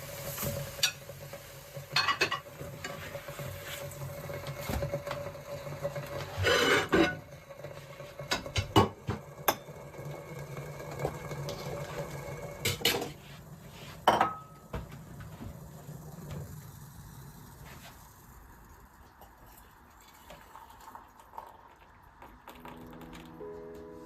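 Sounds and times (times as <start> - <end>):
dishes and utensils clinking: 1.9 - 3.0, 6.3 - 7.3, 14.0 - 14.8.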